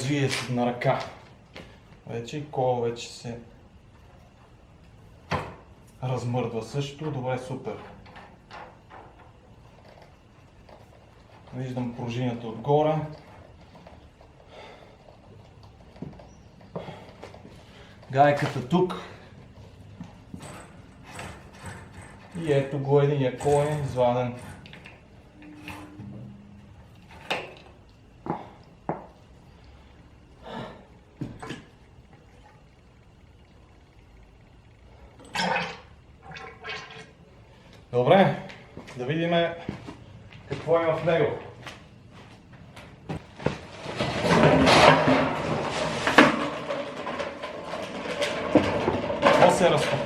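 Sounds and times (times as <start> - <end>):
hard parts knocking and clunking: 7.0 - 12.2, 13.2 - 29.3, 42.8 - 50.0.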